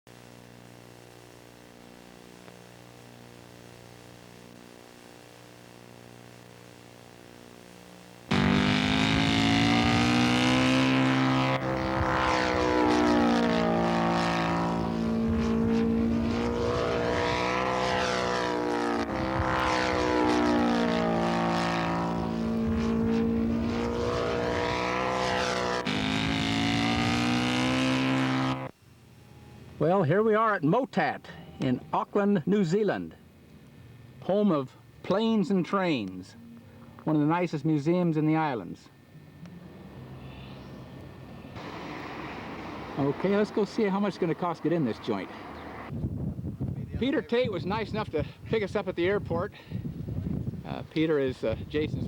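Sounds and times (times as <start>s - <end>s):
faint engine hum: 0.2s - 30.2s, 32.9s - 48.4s
model airplane engines flying past: 8.3s - 28.7s, 39.1s - 45.9s.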